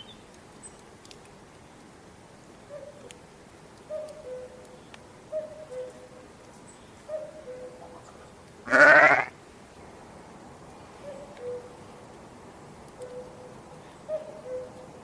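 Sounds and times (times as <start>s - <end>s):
bird two-note coo: 7.1s - 8.1s, 11.0s - 11.7s, 13.0s - 14.9s
loud bleat: 8.6s - 9.4s.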